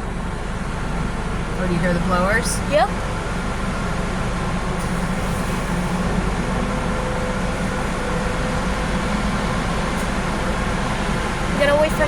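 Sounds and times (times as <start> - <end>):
car wash air-dryer blowers: 3.5 - 12.0.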